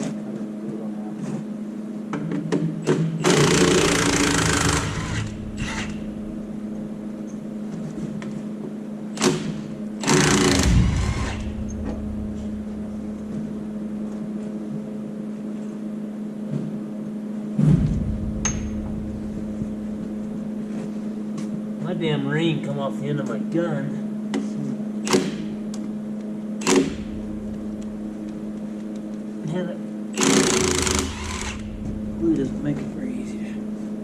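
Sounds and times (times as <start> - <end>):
steady machine hum: 0.0 - 34.0
impact gun hammering on bolts: 2.5 - 6.0, 9.2 - 11.5, 25.0 - 25.6, 26.6 - 27.1.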